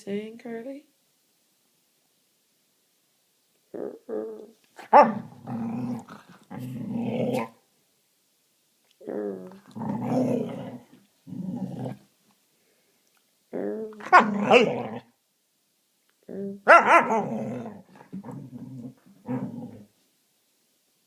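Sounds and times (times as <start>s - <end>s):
dog growling: 3.7s - 7.6s, 9.0s - 12.1s, 13.5s - 15.1s, 16.3s - 19.9s.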